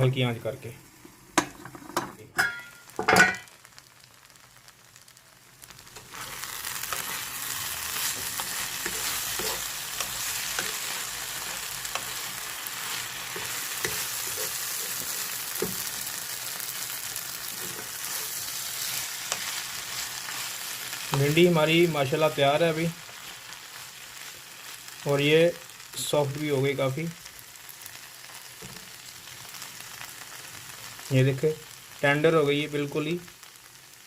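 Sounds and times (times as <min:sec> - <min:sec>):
food sizzling in a pan: 0:00.0 - 0:34.0.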